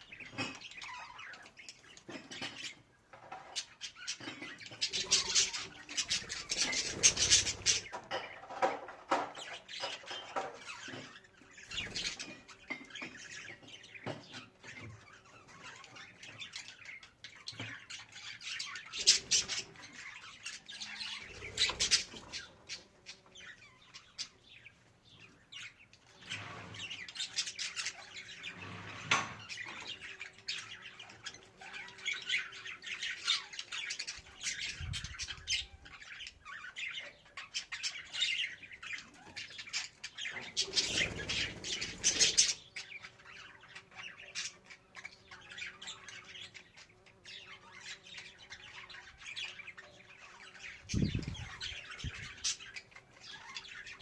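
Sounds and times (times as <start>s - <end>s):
budgerigars chattering: 3.6s - 8.0s, 15.1s - 22.8s, 29.6s - 54.0s.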